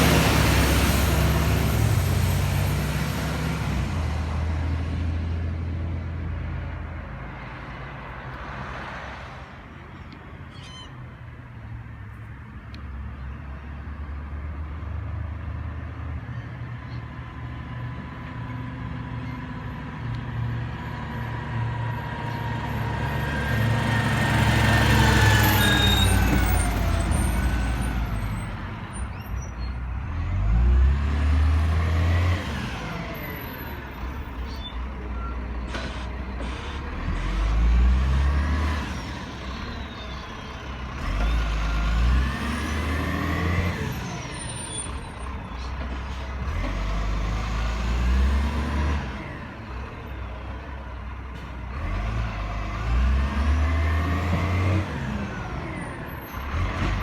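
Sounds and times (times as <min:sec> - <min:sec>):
garbage truck diesel engine revving: 0:00.0 - 0:05.3, 0:20.6 - 0:28.9, 0:35.7 - 0:39.8, 0:40.5 - 0:44.6, 0:45.2 - 0:50.0, 0:50.8 - 0:57.0.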